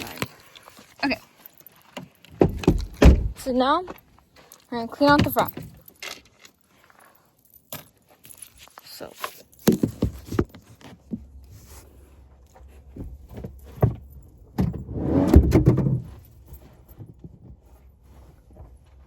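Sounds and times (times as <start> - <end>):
knocks and clicks of objects handled: 0.0 - 6.7, 7.5 - 11.5.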